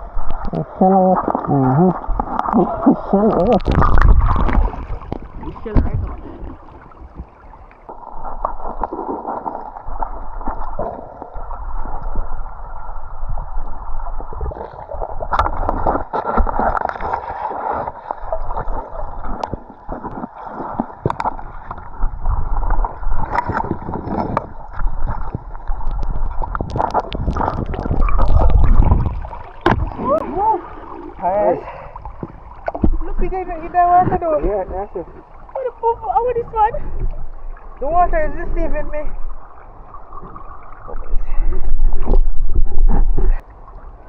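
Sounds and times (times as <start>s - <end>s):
water gurgling and sloshing: 0.0s - 44.0s.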